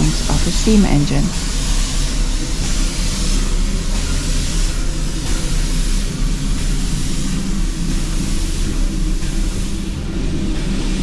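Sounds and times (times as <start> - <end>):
steam locomotive rumbling: 0.0 - 11.0.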